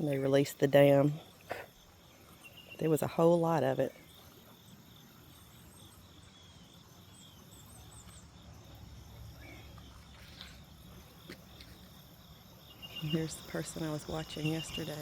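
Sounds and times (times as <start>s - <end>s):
high insect drone: 0.0s - 15.0s
faint high bird chirps: 12.6s - 15.0s.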